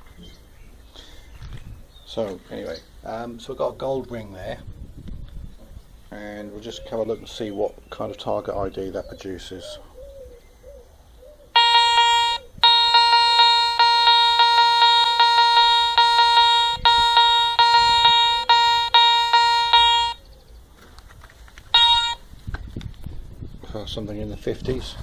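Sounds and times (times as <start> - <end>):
metal detector beeping: 11.6 - 20.2, 21.7 - 22.2.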